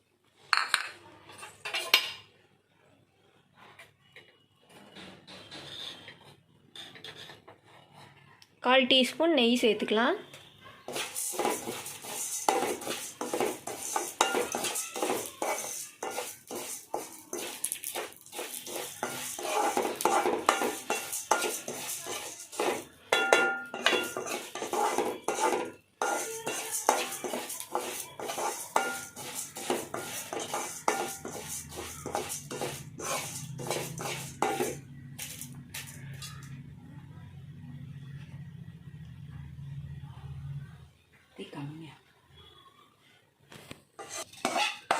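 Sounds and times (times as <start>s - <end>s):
spatula scraping a pan: 5.4s - 8.2s, 10.9s - 36.5s, 44.0s - 44.9s.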